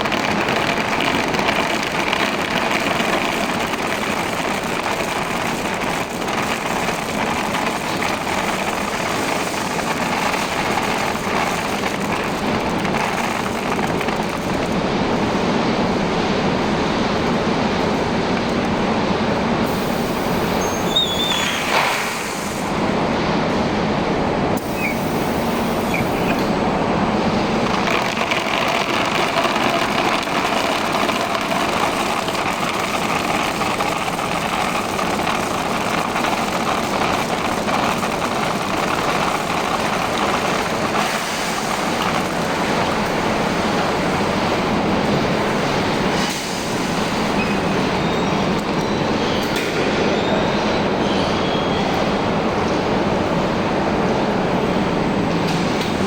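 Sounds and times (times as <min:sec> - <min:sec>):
coating machine mechanical noise: 0:00.0 - 0:56.0
short high squeaks: 0:20.6 - 0:21.8, 0:24.6 - 0:25.1.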